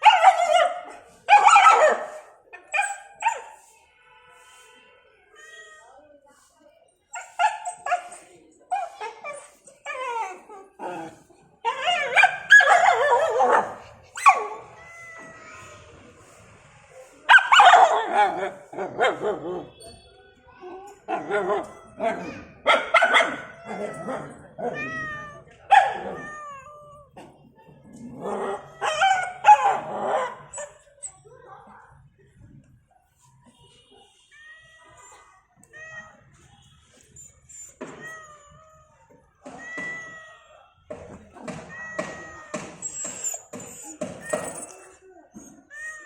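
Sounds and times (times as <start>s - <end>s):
dog yelp: 11.7s - 15.3s, 21.0s - 25.0s, 28.4s - 31.2s, 42.7s - 46.0s
dog whining and yipping: 37.2s - 38.8s, 42.8s - 45.7s.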